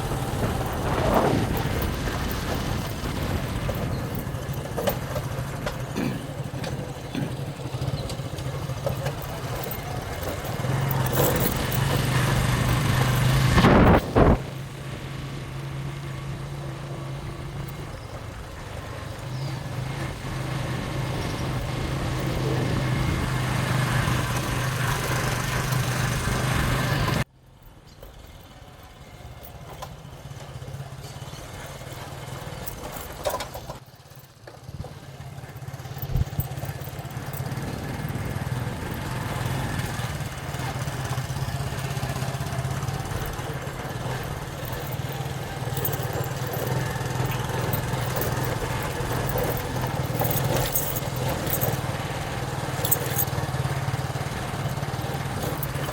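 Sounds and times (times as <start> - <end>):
wind rush on microphone: 0.0 - 4.5, 12.5 - 14.6
motorcycle engine running: 0.0 - 27.3, 28.1 - 55.9.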